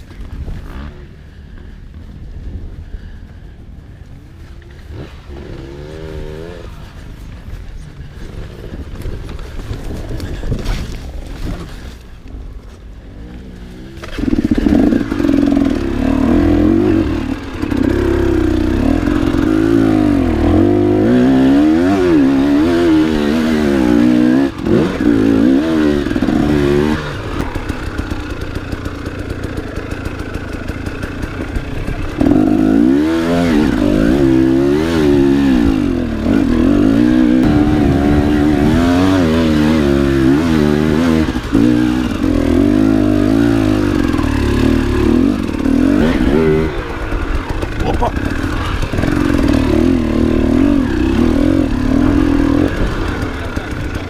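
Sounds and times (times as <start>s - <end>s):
motorcycle engine revving: 4.4s - 54.0s.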